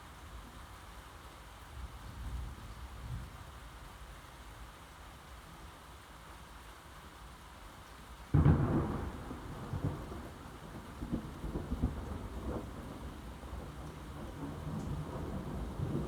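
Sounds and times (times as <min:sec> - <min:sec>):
rain: 0:00.0 - 0:16.0
rolling thunder: 0:08.4 - 0:16.0.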